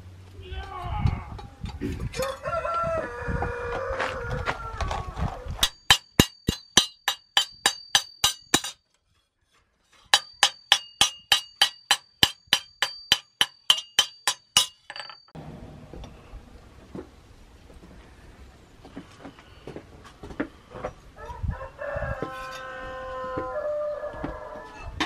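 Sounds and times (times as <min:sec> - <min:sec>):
hammer striking steel on anvil: 0:05.6 - 0:08.8, 0:10.1 - 0:15.4.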